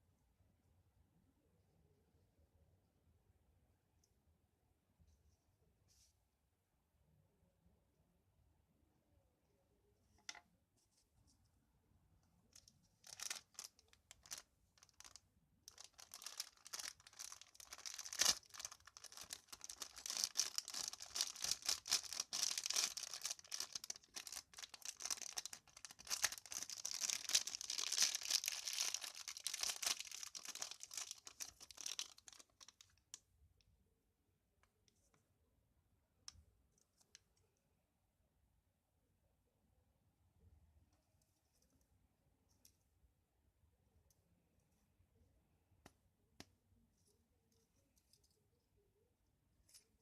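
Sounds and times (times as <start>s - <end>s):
packaging crinkling and tearing: 12.6s - 32.9s.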